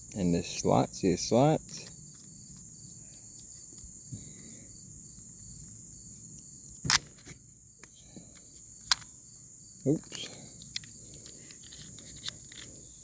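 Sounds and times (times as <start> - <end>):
crickets chirring: 0.0 - 13.0
sharp metallic pistol click: 6.9 - 7.1.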